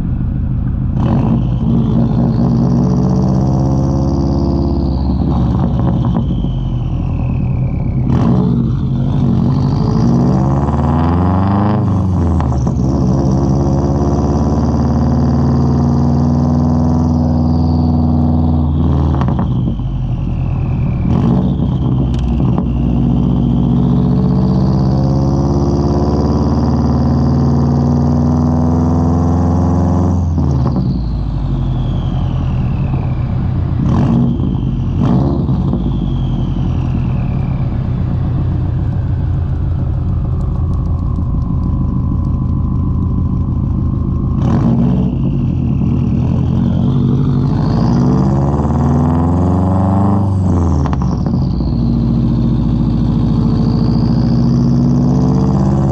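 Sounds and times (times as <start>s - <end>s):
exhaust cracks: 0.0s - 13.8s, 17.1s - 24.7s, 30.3s - 49.0s
car engine rumble: 0.0s - 55.9s.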